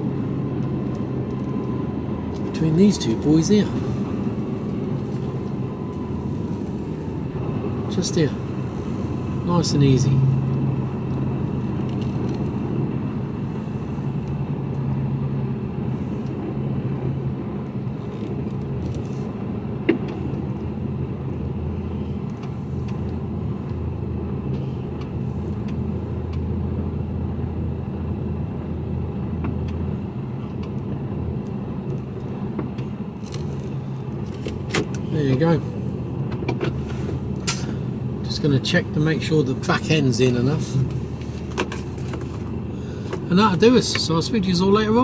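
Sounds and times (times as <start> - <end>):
truck diesel engine running: 0.0 - 45.0.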